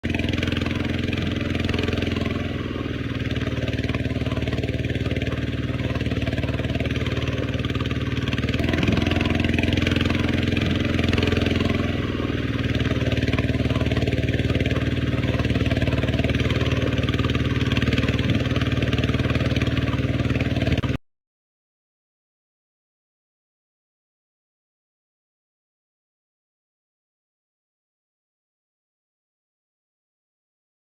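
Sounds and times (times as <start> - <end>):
diesel tractor engine running: 0.0 - 21.0.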